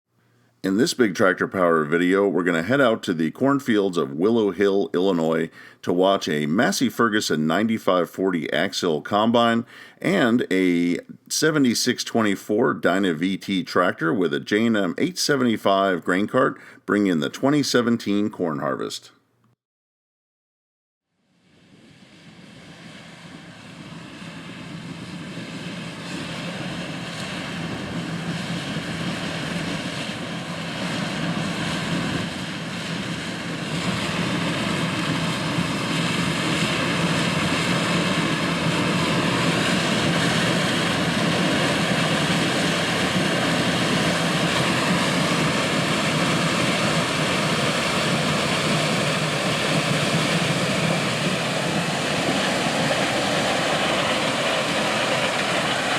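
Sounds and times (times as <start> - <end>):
harvester engine drone: 21.9 - 55.9
high machinery whines: 22.0 - 55.9.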